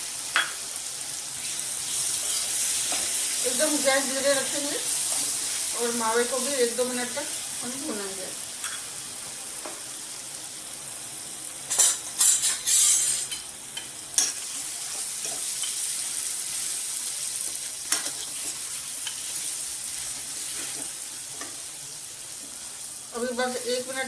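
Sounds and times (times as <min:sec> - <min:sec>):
food sizzling in ghee: 0:00.0 - 0:24.0
metal spatula scraping a pan: 0:11.7 - 0:13.4.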